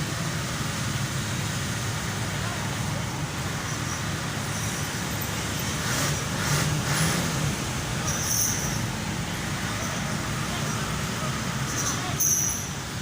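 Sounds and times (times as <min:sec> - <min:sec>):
vehicle engines rumbling: 0:00.0 - 0:13.0
vehicle passing: 0:04.4 - 0:08.0.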